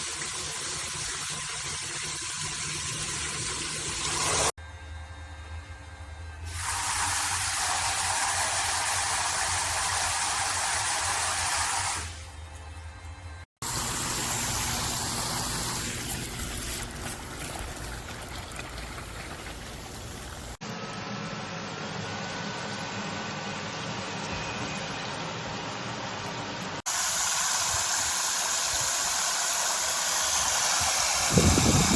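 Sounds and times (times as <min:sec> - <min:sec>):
water spraying from shower: 0:06.5 - 0:12.3, 0:13.6 - 0:20.6, 0:26.9 - 0:31.9.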